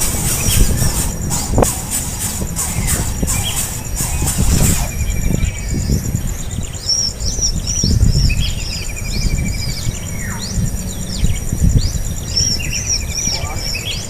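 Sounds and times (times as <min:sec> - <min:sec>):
downward sliding bird call: 0:00.0 - 0:05.7
low rumble: 0:00.0 - 0:13.8
bird chirping: 0:00.0 - 0:14.0
buzzy bird trill: 0:00.0 - 0:14.0
high-pitched insect drone: 0:00.0 - 0:14.0.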